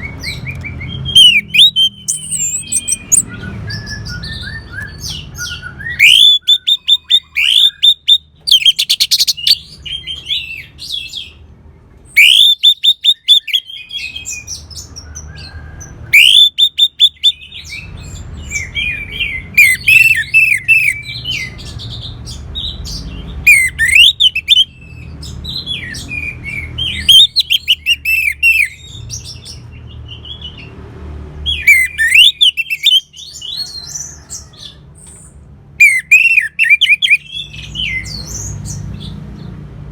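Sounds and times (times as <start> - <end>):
bird singing whistled trills: 0.0 - 11.2, 12.2 - 14.6, 16.2 - 21.6, 22.9 - 29.6, 31.5 - 34.3, 35.8 - 38.8.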